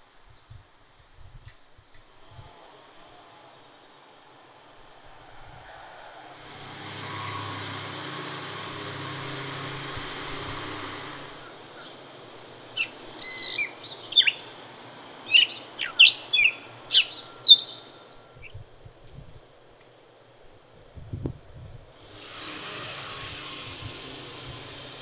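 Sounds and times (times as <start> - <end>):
songbird singing: 1.5 - 21.6
rushing noise with low hum: 2.2 - 15.8.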